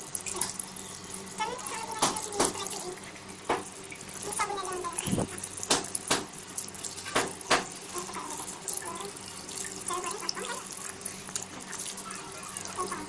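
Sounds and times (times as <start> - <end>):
water running: 0.0 - 13.0
sharp knocks: 5.7 - 6.3.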